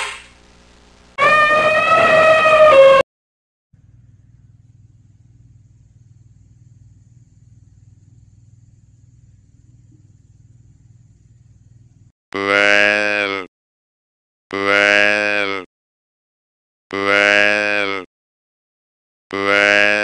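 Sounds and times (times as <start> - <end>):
faint low rumble: 3.8 - 12.1.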